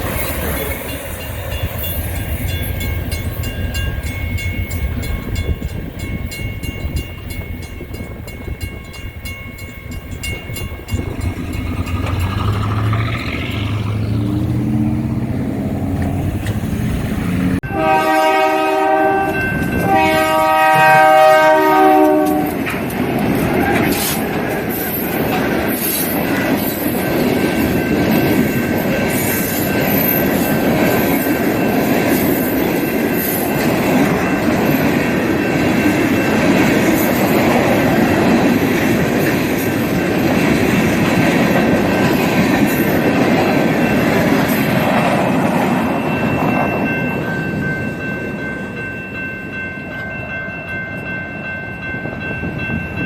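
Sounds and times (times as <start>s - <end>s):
wheel clatter over rail joints: 9.6s - 17.6s
diesel engine passing: 10.8s - 17.6s
locomotive horn blasts: 17.6s - 22.6s.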